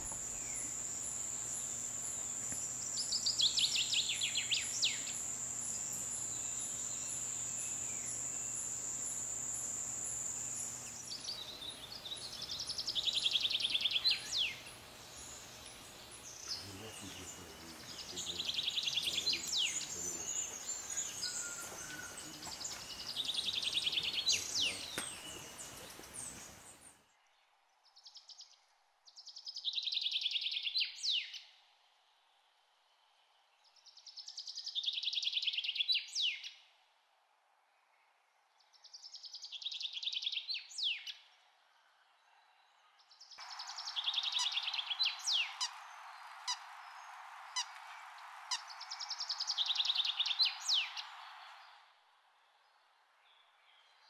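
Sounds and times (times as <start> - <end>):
steady hiss: 0.0 - 26.9.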